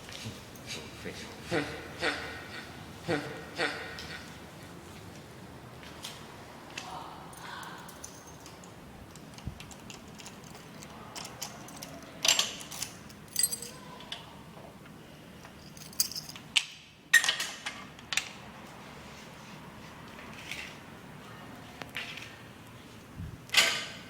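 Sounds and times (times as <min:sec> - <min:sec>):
keys jangling: 0:07.6 - 0:08.7, 0:09.3 - 0:13.9, 0:15.4 - 0:16.5.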